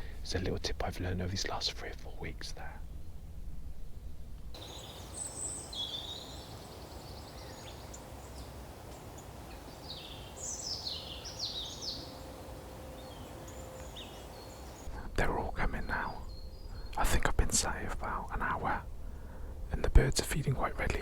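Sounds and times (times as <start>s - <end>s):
low background rumble: 0.0s - 21.0s
small birds calling: 4.6s - 18.7s.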